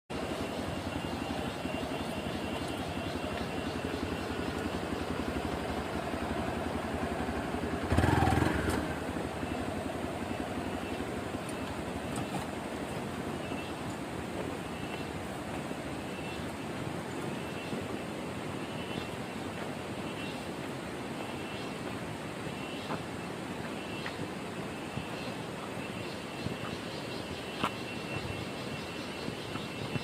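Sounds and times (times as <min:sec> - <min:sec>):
motorcycle engine running: 0:00.2 - 0:21.0.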